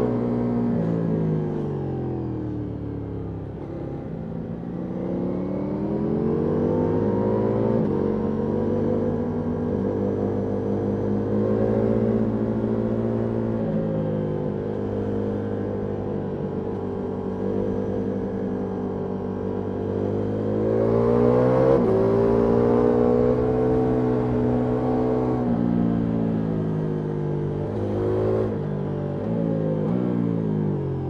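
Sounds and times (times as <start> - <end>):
motorcycle engine accelerating: 19.8 - 31.0.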